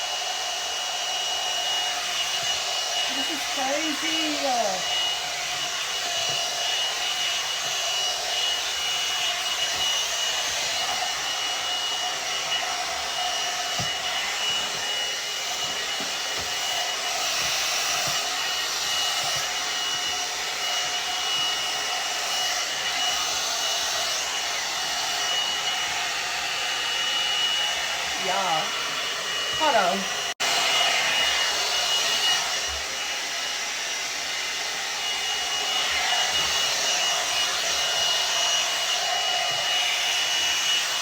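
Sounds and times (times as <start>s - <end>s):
hot-air dryer brush blowing: 0.0s - 41.0s.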